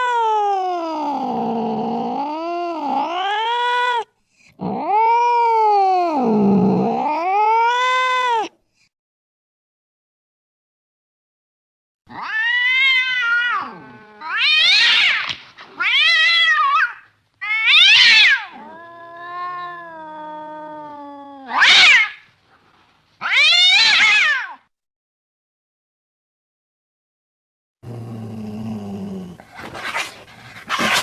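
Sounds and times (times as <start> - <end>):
cat meowing and caterwauling: 0.0 - 8.6, 12.1 - 22.3, 23.2 - 24.7.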